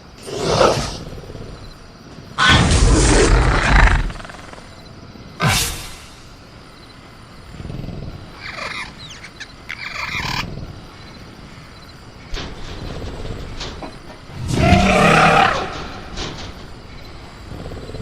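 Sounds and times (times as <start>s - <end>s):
dinosaur screeching calls: 8.4s - 10.5s, 14.4s - 16.1s.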